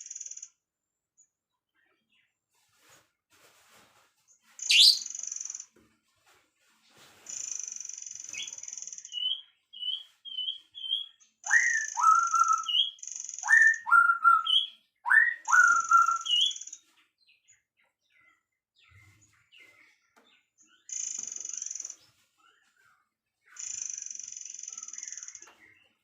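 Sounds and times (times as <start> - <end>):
songbirds singing: 4.4 - 5.8, 7.3 - 26.0.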